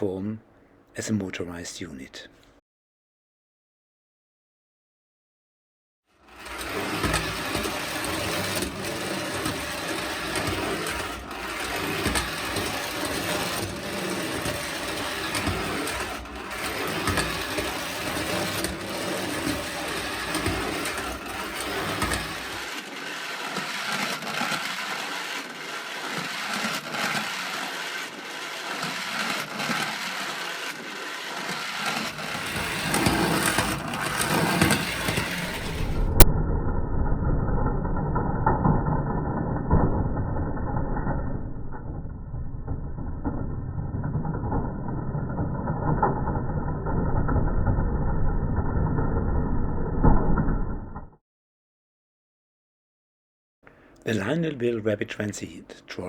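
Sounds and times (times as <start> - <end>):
toy train motor whirring: 6.2 - 36.2
deep rumble: 35.7 - 51.1.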